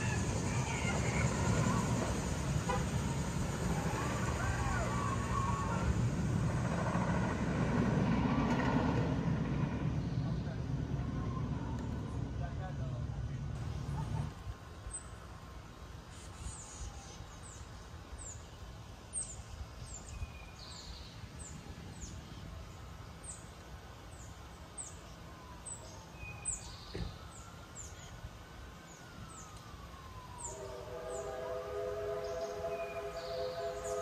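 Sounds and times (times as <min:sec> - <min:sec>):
bird chirping: 0:32.2 - 0:34.0.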